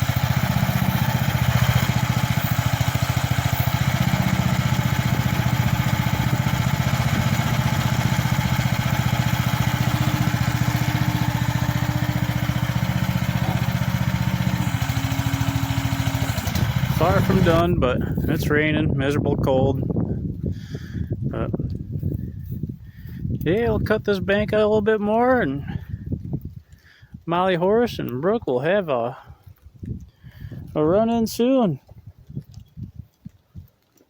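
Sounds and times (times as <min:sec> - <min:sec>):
mini excavator engine running: 0:00.0 - 0:18.4.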